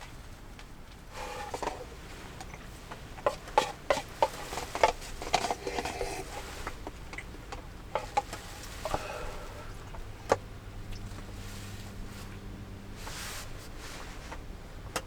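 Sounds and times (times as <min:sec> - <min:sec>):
small things clattering: 0:00.9 - 0:11.3.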